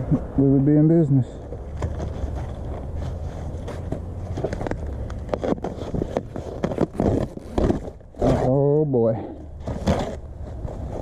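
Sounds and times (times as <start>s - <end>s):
plastic wrap and cardboard crackling: 1.7s - 8.6s.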